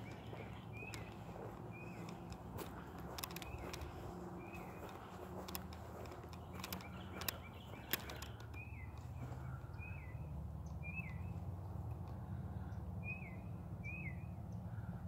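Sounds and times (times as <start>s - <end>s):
small bird chirping: 0.0s - 11.5s
sharp clicks: 0.1s - 9.1s.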